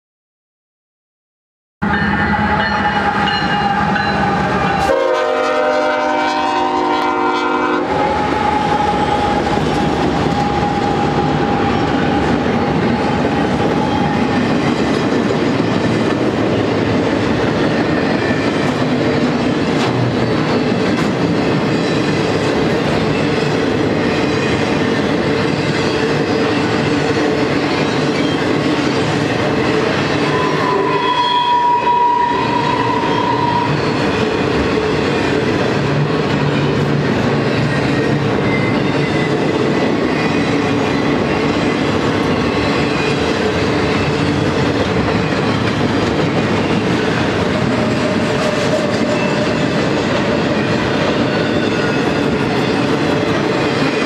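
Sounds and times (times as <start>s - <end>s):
train air horn: 2.1s - 12.3s, 30.2s - 33.9s
train wheels clattering on rails: 7.9s - 31.1s, 32.6s - 54.0s.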